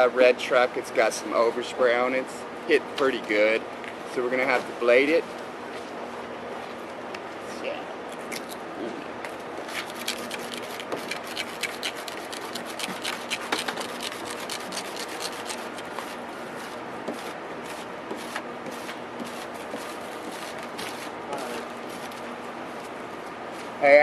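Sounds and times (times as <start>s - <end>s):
razor blade scraping paint: 9.7s - 22.2s.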